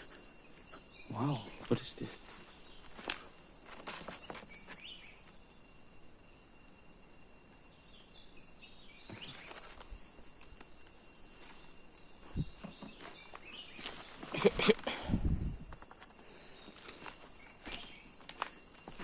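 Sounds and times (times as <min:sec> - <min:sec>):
high-pitched insect drone: 0:00.0 - 0:19.0
faint bird chirps: 0:07.5 - 0:19.0.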